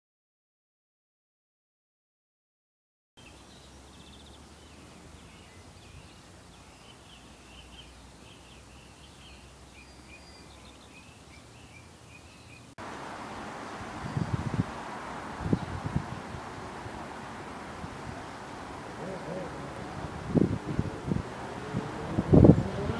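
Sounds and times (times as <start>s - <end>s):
small birds chirping: 3.2s - 22.9s
steady hiss: 3.2s - 22.9s
wind buffeting microphone: 13.0s - 22.9s.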